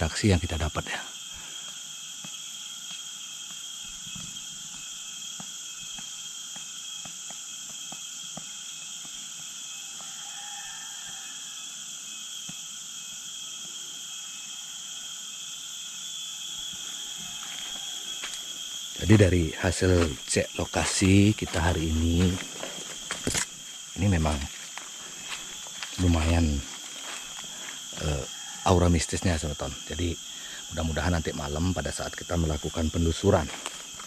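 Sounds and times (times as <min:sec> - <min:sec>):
insects chorus: 0:00.0 - 0:34.0.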